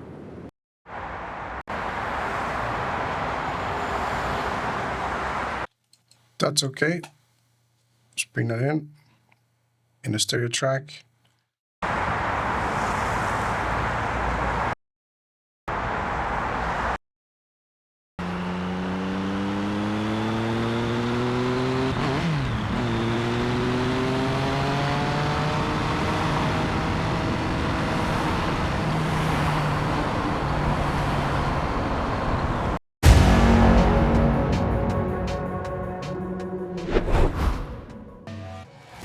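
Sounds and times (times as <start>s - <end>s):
city traffic: 0.0s - 6.2s, 11.8s - 14.8s, 15.7s - 17.0s, 18.2s - 39.0s
motorcycle engine accelerating: 18.2s - 30.5s
sudden loud sound: 33.0s - 38.0s.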